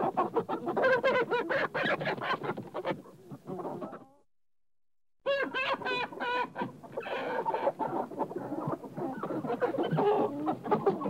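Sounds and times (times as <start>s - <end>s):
chickens clucking: 0.0s - 4.3s, 5.3s - 11.0s.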